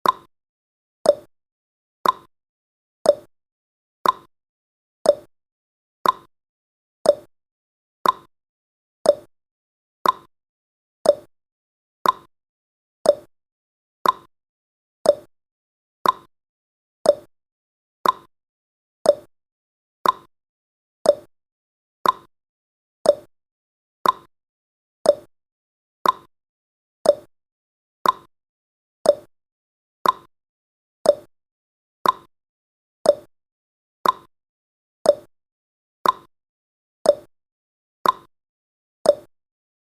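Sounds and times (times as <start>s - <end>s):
timer ticking: 0.0s - 0.3s, 1.1s - 1.3s, 2.0s - 2.3s, 3.1s - 3.3s, 4.0s - 4.3s, 5.1s - 5.3s, 6.0s - 6.3s, 7.0s - 7.3s, 8.0s - 8.3s, 9.0s - 9.3s, 10.0s - 10.3s, 11.0s - 11.3s, 12.0s - 12.3s, 13.0s - 13.3s, 14.0s - 14.3s, 15.0s - 15.3s, 16.0s - 16.3s, 17.0s - 17.3s, 18.0s - 18.3s, 19.0s - 19.3s, 20.0s - 20.3s, 21.0s - 21.3s, 22.0s - 22.3s, 23.0s - 23.3s, 24.0s - 24.3s, 25.0s - 25.3s, 26.0s - 26.3s, 27.0s - 27.3s, 28.0s - 28.3s, 29.0s - 29.3s, 30.0s - 30.3s, 31.0s - 31.3s, 32.0s - 32.3s, 33.0s - 33.3s, 34.0s - 34.3s, 35.1s - 35.3s, 36.0s - 36.3s, 37.1s - 37.3s, 38.0s - 38.3s, 39.1s - 39.3s.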